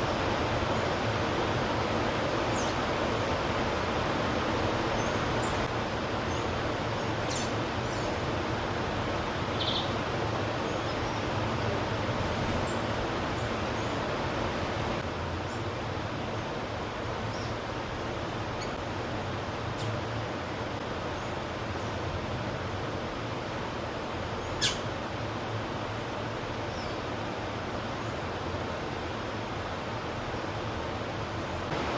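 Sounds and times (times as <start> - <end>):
steady rushing noise: 0.0 - 31.9
faint bird chirps: 9.5 - 10.0, 24.4 - 24.9.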